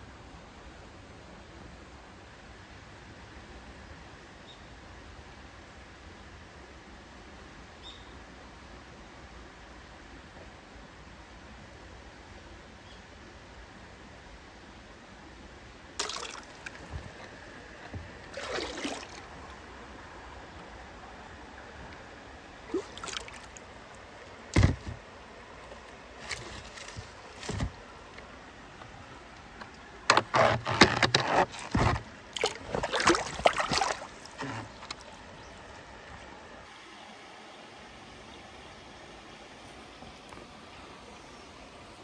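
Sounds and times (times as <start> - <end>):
shallow water splashing: 16.0 - 36.6.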